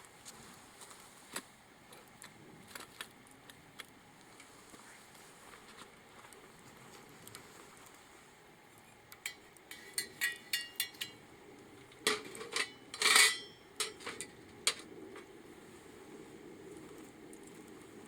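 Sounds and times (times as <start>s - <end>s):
metal objects clinking: 9.3s - 11.2s, 12.1s - 14.3s.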